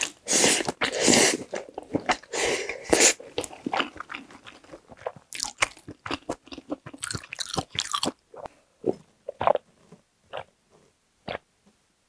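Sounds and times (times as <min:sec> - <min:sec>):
wet chewing and mouth sounds: 0:00.0 - 0:09.6.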